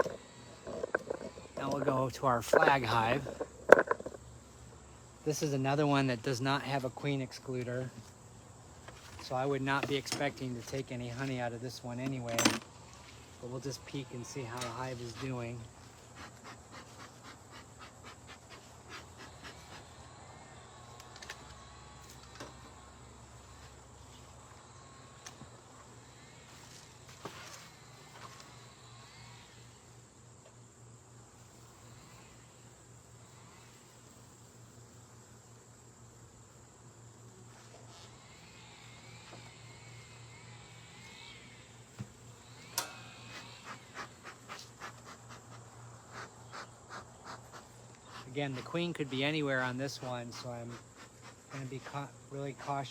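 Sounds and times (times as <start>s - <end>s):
hive tool scraping: 0.0s - 4.6s, 5.3s - 19.8s, 42.7s - 52.9s
faint steady hum: 0.0s - 52.9s
honeybees buzzing: 0.0s - 52.9s.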